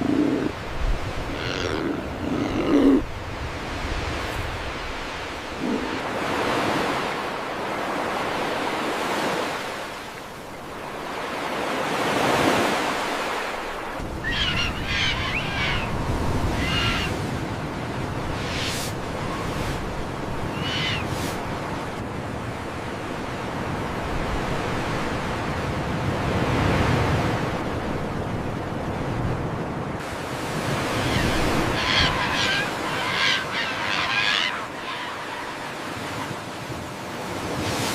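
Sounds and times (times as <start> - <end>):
bird calls: 14.2 - 17.2, 20.5 - 21.2, 31.0 - 36.3.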